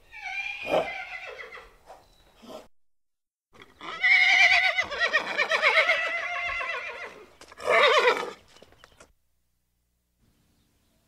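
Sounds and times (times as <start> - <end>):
horse whinnying: 0.1 - 1.8, 3.6 - 8.4.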